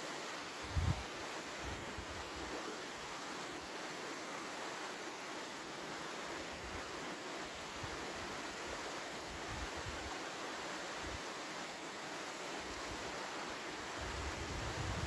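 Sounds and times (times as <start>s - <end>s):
wind rumbling on microphone: 0.6s - 1.1s, 14.0s - 15.0s.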